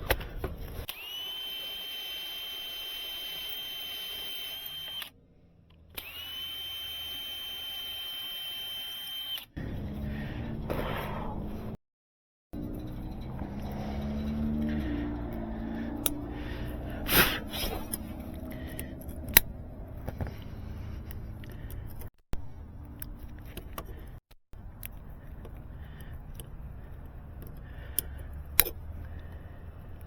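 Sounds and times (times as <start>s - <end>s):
clicks and rustles of tools: 22.8s - 30.0s.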